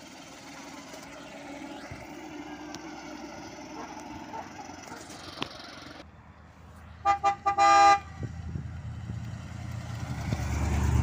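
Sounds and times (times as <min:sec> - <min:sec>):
tyres on gravel: 0:00.0 - 0:06.0
vintage car engine running: 0:00.0 - 0:06.0.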